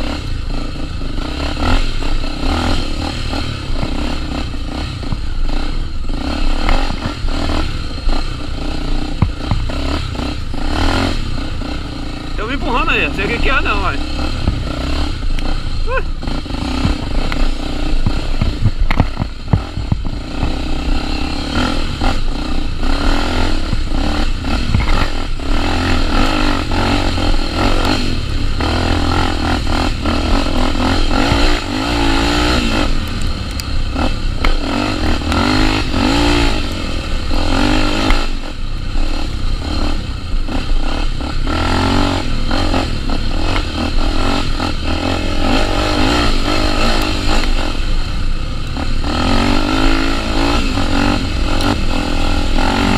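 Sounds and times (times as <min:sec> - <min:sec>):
dirt bike engine revving: 0:00.0 - 0:52.9
bike rattles and knocks: 0:01.7 - 0:11.3, 0:16.5 - 0:21.4, 0:23.0 - 0:25.4.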